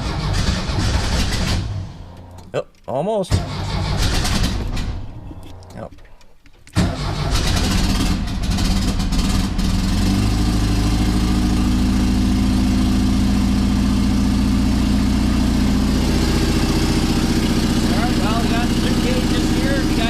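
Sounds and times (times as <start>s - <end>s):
car engine idling: 6.8s - 20.0s.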